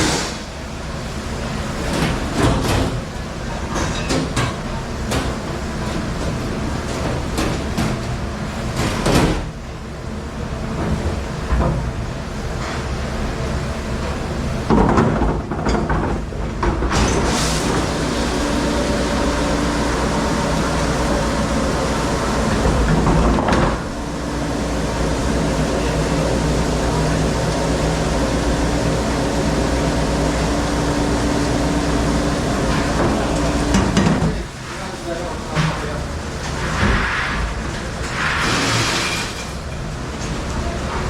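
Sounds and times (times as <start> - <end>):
large machine humming and rushing: 16.9 - 34.4.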